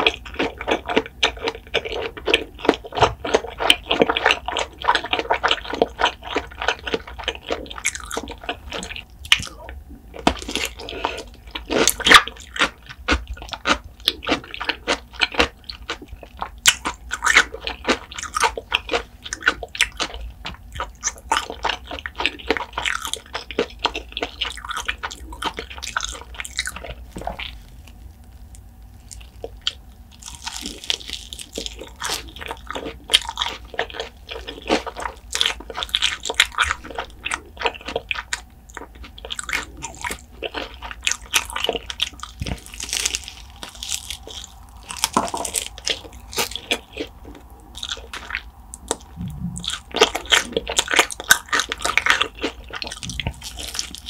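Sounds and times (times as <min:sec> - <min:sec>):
chewing crunchy food: 0:00.0 - 0:54.0
wet mouth sounds: 0:29.1 - 0:54.0.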